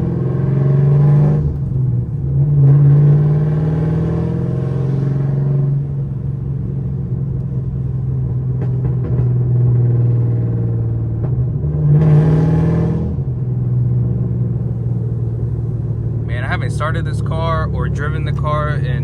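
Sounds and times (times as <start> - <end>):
car engine idling: 13.6 - 19.0.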